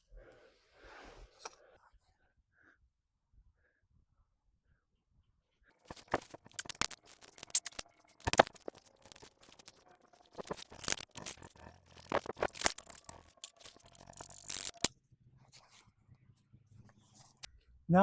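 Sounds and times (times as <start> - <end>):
small objects clattering: 5.8 - 14.9.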